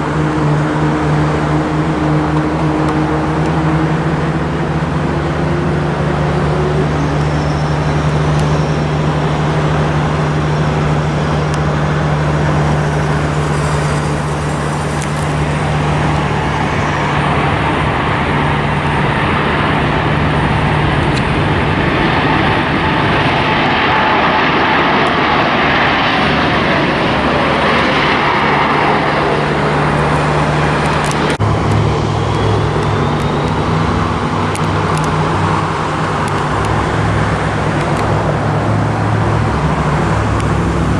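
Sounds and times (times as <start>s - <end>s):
steady low hum: 0.0s - 24.3s
jet airliner engines roaring: 0.0s - 40.9s.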